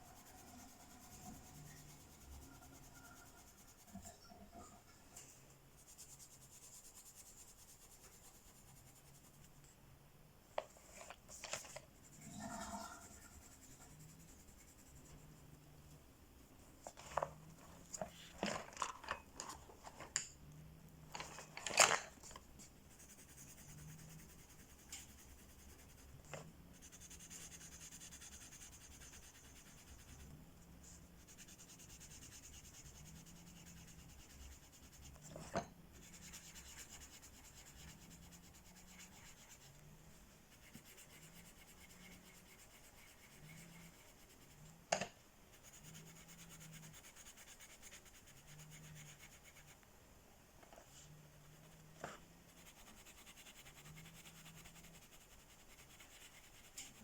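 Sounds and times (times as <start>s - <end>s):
coloring tool rubbing on paper: 0.0s - 4.2s, 5.7s - 9.5s, 10.8s - 15.6s, 22.6s - 44.8s, 45.5s - 49.8s, 50.9s - 57.0s.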